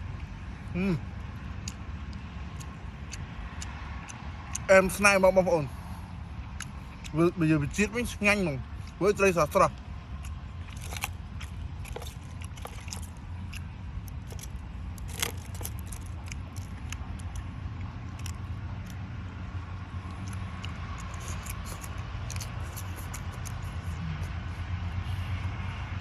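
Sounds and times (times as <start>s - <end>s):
chewing crunches: 0.0s - 25.9s
steady low hum: 0.0s - 26.0s.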